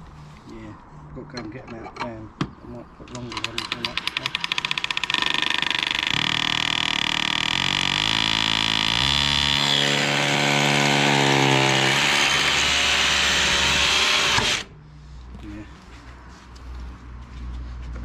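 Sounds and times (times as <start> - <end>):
power drill running: 3.6 - 14.7.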